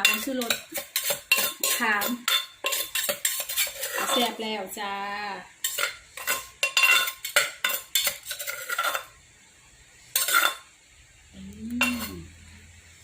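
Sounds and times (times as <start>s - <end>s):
pestle clinking in a mortar: 0.0s - 4.2s.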